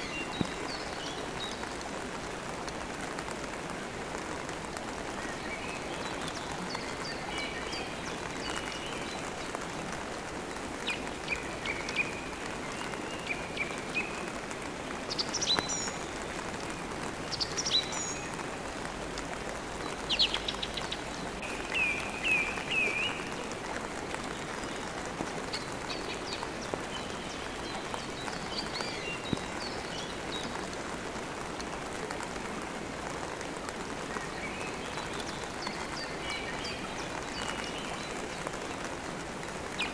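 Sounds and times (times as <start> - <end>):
steady rain falling: 0.0 - 39.9
birds chirping: 19.8 - 23.6.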